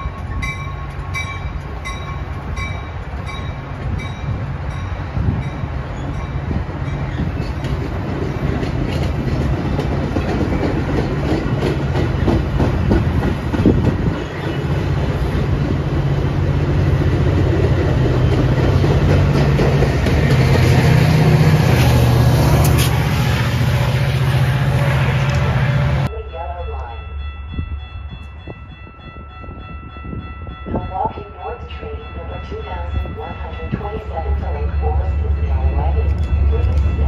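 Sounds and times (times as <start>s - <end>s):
diesel locomotive engine hum: 0.0s - 37.0s
train rumbling: 0.0s - 37.0s
wheels clacking over rail joints: 7.0s - 23.0s.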